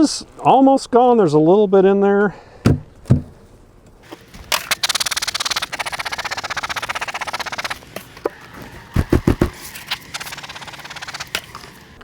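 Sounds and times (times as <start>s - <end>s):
hive feeder rattling: 4.0s - 12.0s.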